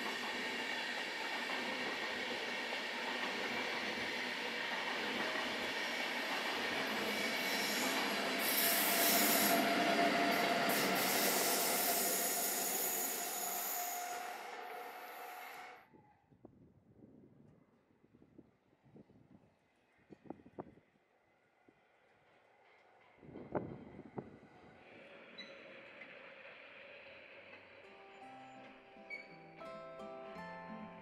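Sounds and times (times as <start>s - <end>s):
train wheels rushing on rail: 0.0s - 15.8s, 22.3s - 27.9s
high-pitched hissing and squealing: 7.3s - 15.6s.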